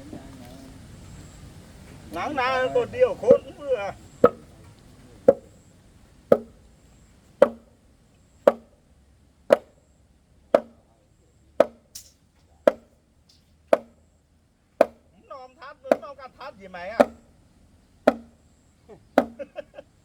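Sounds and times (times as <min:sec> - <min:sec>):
axe chopping wood: 0:04.2 - 0:04.5, 0:05.3 - 0:05.5, 0:06.3 - 0:06.6, 0:07.4 - 0:07.7, 0:08.5 - 0:08.7, 0:09.5 - 0:09.8, 0:10.6 - 0:10.8, 0:11.6 - 0:12.1, 0:12.7 - 0:12.9, 0:13.7 - 0:14.0, 0:14.8 - 0:15.1, 0:15.9 - 0:16.1, 0:17.0 - 0:17.3, 0:18.1 - 0:18.4, 0:19.2 - 0:19.5
light knock: 0:04.2 - 0:05.6, 0:06.3 - 0:06.6, 0:07.4 - 0:07.7, 0:10.6 - 0:10.8.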